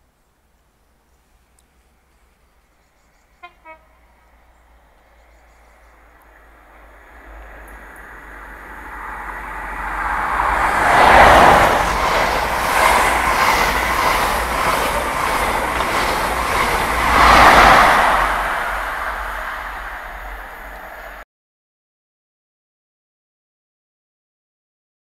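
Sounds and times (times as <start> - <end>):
diesel train passing: 2.0 - 21.2
wheels clattering over rails: 10.8 - 21.0.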